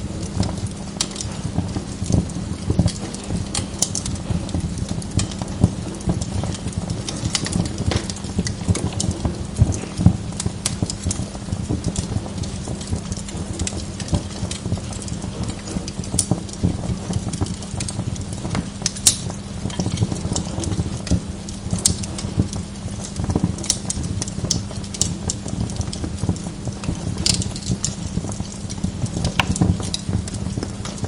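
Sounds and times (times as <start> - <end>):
log fire crackling and popping: 0.0 - 31.0
low fire rumble: 0.0 - 31.0.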